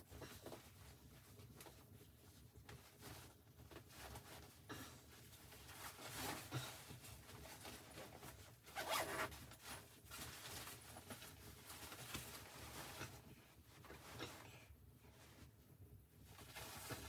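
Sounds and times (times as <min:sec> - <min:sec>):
fabric rustling and scraping: 0:00.2 - 0:15.6, 0:16.2 - 0:17.0.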